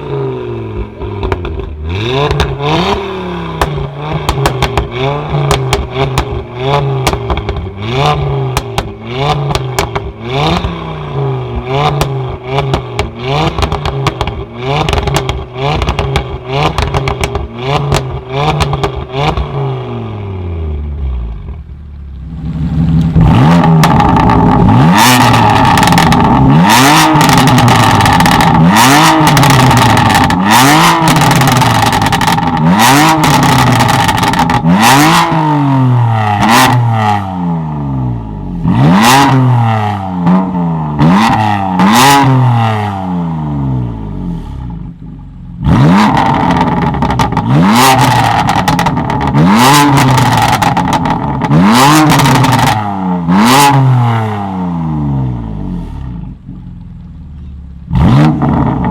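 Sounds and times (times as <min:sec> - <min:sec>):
car engine revving: 0:00.0 - 0:58.9
exhaust pops and crackles: 0:00.8 - 0:10.8, 0:11.5 - 0:19.6, 0:21.3 - 0:35.2, 0:45.9 - 0:52.8, 0:56.2 - 0:58.9.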